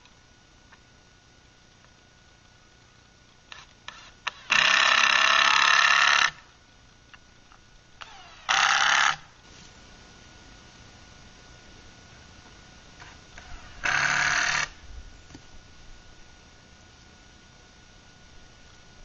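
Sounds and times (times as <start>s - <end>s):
power drill running: 8.0s - 9.2s, 13.0s - 14.8s.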